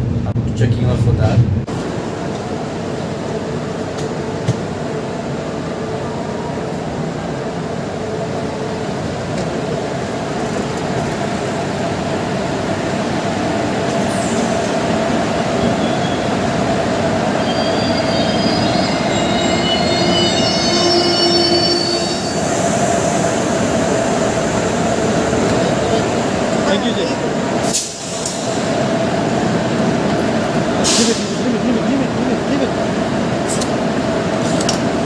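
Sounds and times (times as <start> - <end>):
train rumbling on rails: 0.0 - 35.0
high-pitched wheel squeal: 17.4 - 22.6.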